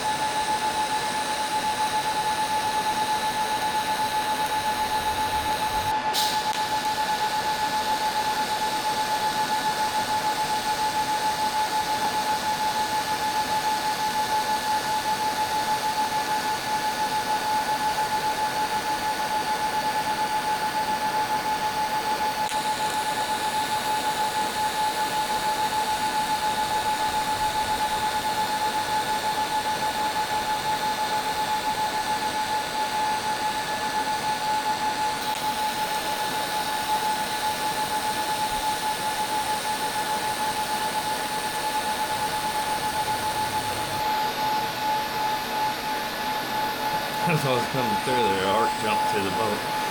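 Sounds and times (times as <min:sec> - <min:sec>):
welding arc buzzing hiss: 0:00.0 - 0:09.3, 0:35.2 - 0:44.4.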